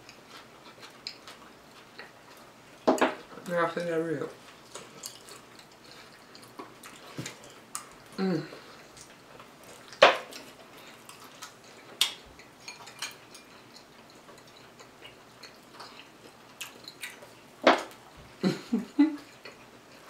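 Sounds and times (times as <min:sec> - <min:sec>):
wet chewing and lip-smacking: 0:04.5 - 0:18.0
person murmuring: 0:08.2 - 0:08.6.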